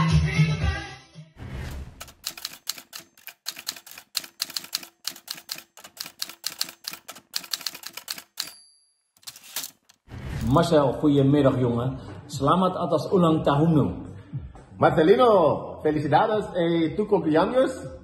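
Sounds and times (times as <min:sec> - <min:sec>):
typewriter keystrokes clacking: 0:02.0 - 0:08.6, 0:09.2 - 0:10.0.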